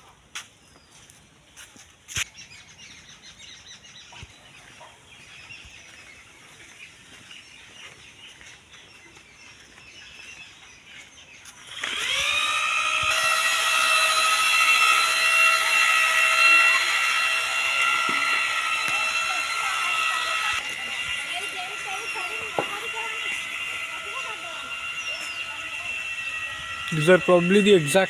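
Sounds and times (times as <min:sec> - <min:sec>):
birds chirping faintly: 0:00.0 - 0:11.9, 0:19.4 - 0:28.0
loud rising whine: 0:11.7 - 0:28.0.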